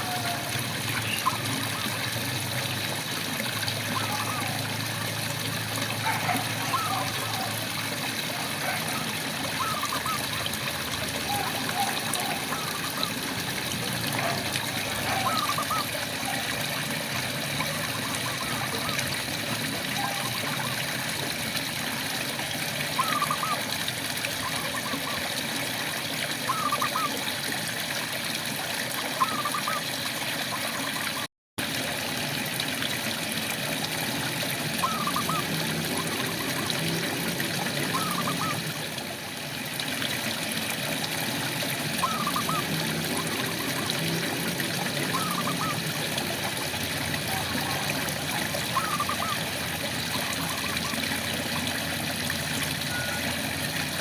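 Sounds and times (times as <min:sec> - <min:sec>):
frog chirping: 0:48.8 - 0:49.4.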